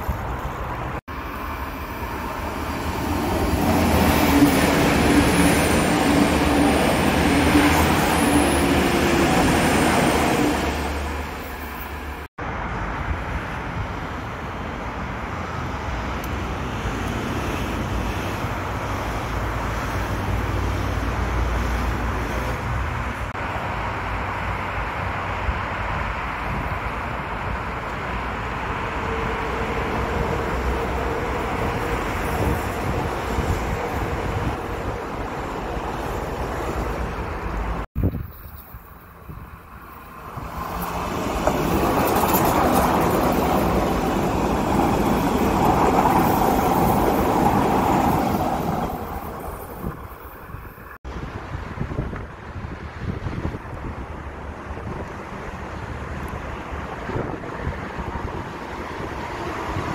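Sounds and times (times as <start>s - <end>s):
train rolling past: 0.0s - 59.9s
wheels rumbling on rails: 0.0s - 59.9s.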